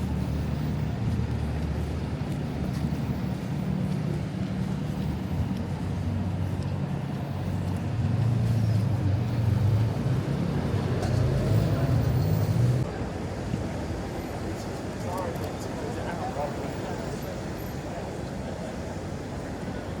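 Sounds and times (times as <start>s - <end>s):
vehicle engine droning: 0.0s - 14.4s.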